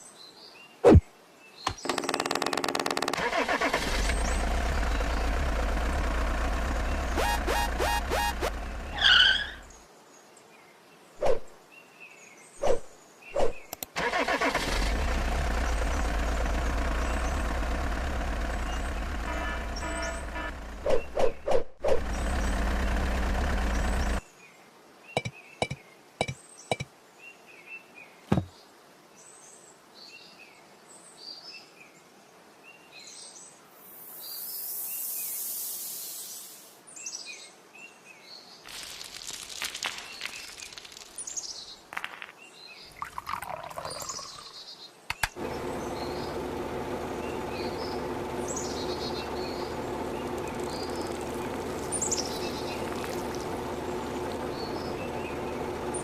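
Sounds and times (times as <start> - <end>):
small birds chirping: 3.9 - 13.9, 15.3 - 28.7, 32.8 - 56.0
machine hum with held tones: 6.6 - 9.0
loud steady noise: 7.0 - 8.8
sharp clicks: 13.7 - 14.0, 45.1 - 45.4
hiss: 33.8 - 36.8.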